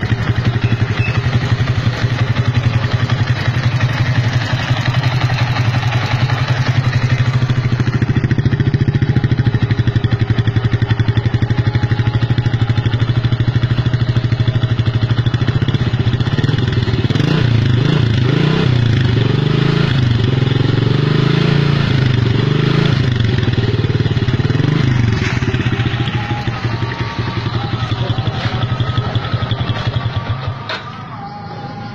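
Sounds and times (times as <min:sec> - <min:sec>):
motorcycle engine revving: 0:00.0 - 0:31.9.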